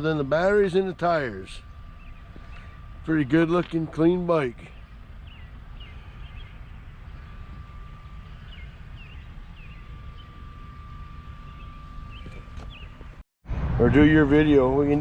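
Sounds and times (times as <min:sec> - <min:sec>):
low steady rumble: 0:00.0 - 0:15.0
small bird chirping: 0:04.7 - 0:10.5, 0:11.4 - 0:13.1.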